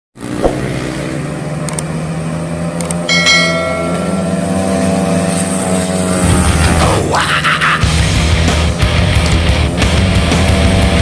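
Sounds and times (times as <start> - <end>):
motorcycle engine running: 0.2 - 11.0
light clicks: 1.7 - 1.9
short ringing tone: 3.1 - 4.8.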